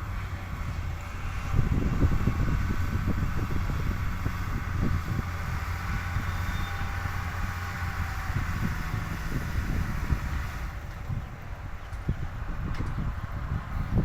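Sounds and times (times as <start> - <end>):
diesel truck engine rumbling: 0.0 - 14.0
wind buffeting microphone: 0.0 - 14.0.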